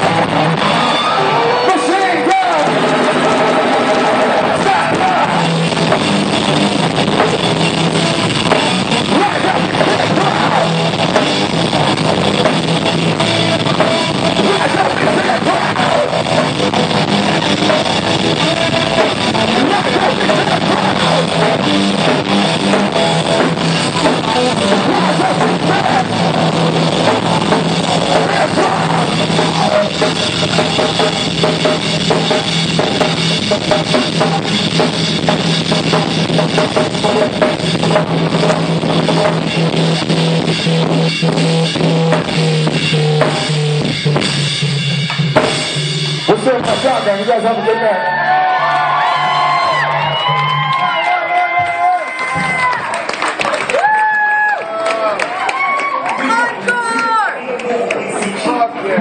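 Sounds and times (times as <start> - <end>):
drum kit: 0.0 - 55.6
electric guitar: 0.0 - 59.0
live rock band: 0.0 - 59.0.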